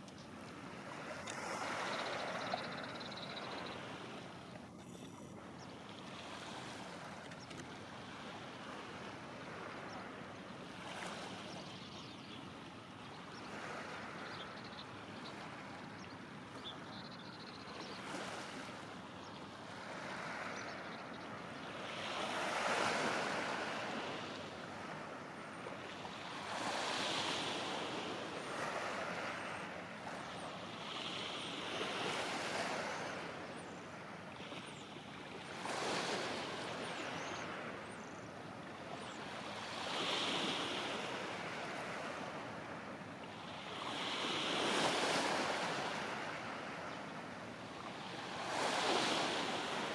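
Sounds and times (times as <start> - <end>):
waves washing onto shore: 35.4 - 49.9.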